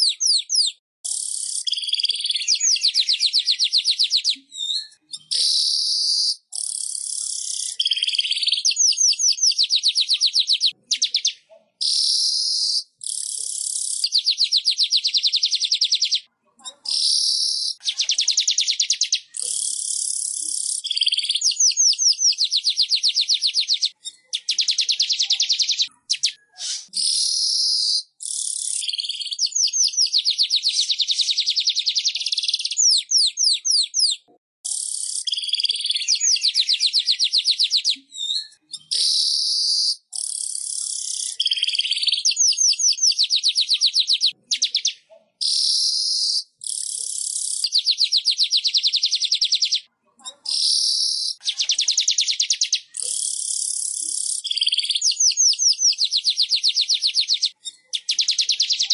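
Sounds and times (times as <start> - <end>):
weaver bird trills: 0.0 - 49.9, 50.5 - 58.9
bird harsh hissing phrases: 26.6 - 27.5.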